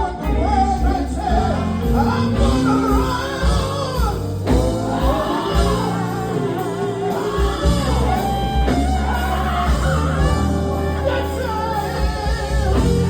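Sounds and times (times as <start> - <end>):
bass guitar: 0.0 - 13.0
electric guitar: 0.0 - 13.0
gospel band playing: 0.0 - 13.0.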